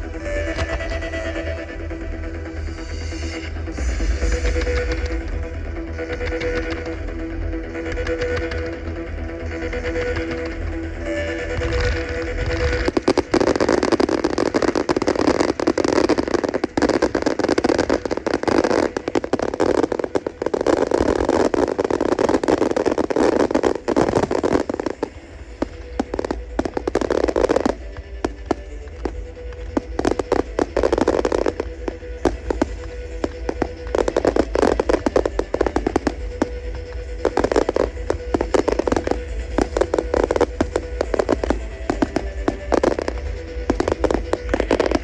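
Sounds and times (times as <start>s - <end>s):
fireworks crackling and banging: 0.0s - 1.7s, 2.3s - 45.0s.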